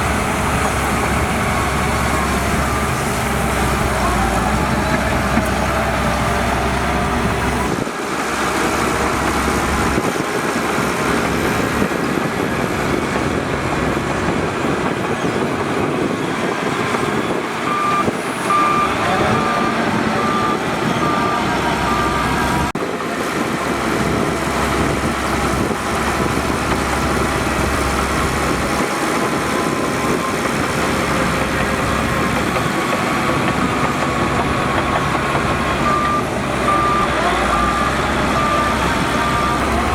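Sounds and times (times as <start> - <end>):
heavy diesel machinery working: 0.0 - 39.9
reversing alarm beeps: 17.7 - 22.7, 35.8 - 39.9.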